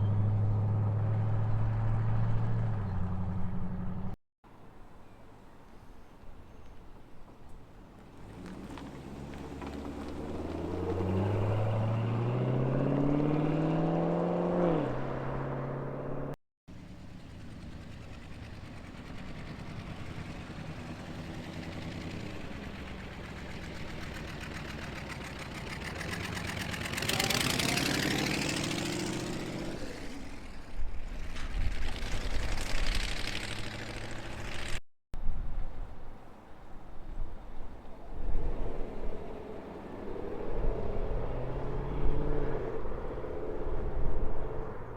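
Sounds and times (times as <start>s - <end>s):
engines running steadily: 0.0s - 4.2s, 8.2s - 34.8s
uneven low engine rumble: 0.0s - 4.2s, 7.9s - 34.8s
car accelerating: 8.1s - 16.4s, 17.2s - 34.8s, 38.2s - 44.9s
car revving loudly: 10.2s - 16.4s, 26.0s - 30.4s.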